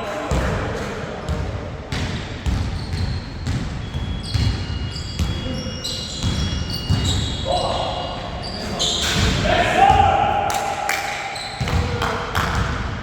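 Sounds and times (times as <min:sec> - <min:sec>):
basketball dribbling on court: 0:01.3 - 0:07.4
sneaker squeaks: 0:01.9 - 0:10.1, 0:11.2 - 0:12.7.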